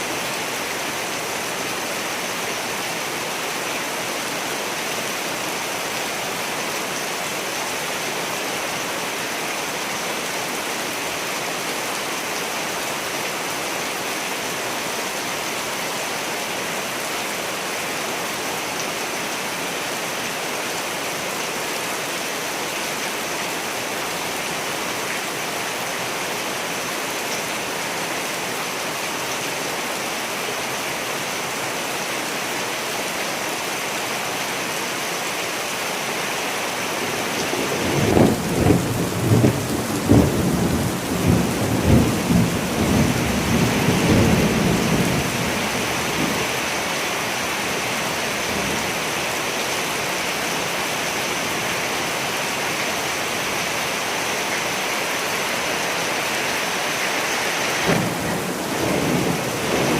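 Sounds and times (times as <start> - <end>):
heavy rain falling: 0.0 - 59.9
thunder rumbling and cracking: 37.8 - 45.6, 57.8 - 59.9.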